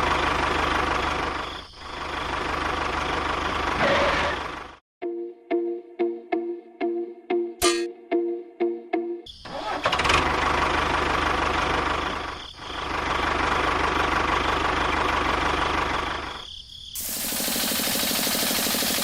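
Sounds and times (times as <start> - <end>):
music: 5.0 - 9.8
hissing noise: 17.0 - 19.0
small motor humming: 17.0 - 19.0.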